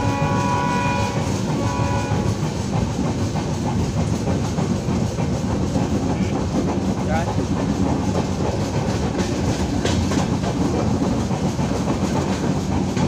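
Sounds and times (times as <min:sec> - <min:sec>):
train horn: 0:00.0 - 0:02.5
train wheels rumbling on rail: 0:00.0 - 0:13.0
wheels clattering over track: 0:01.2 - 0:13.0.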